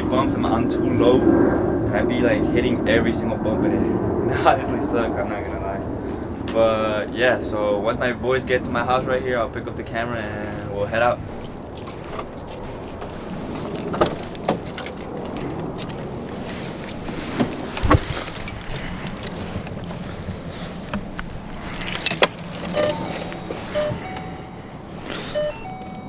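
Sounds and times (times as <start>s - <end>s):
handling clicks and knocks: 11.2s - 26.0s
keys jangling: 11.3s - 13.0s, 13.7s - 20.3s, 21.0s - 26.0s
low steady hum: 14.7s - 26.0s.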